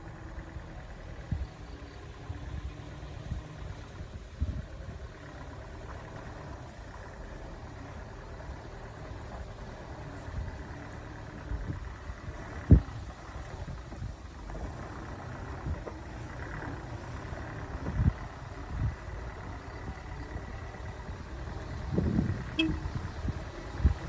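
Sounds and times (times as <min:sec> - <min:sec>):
truck engine rumbling: 0:00.0 - 0:24.0.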